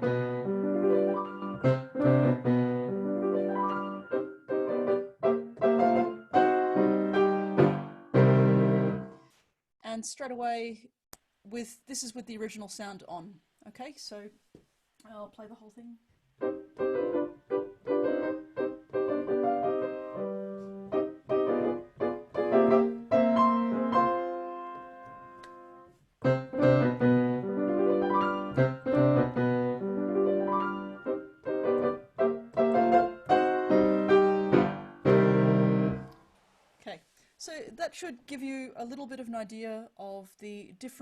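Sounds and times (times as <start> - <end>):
piano playing: 0.0 - 9.2, 16.4 - 36.2.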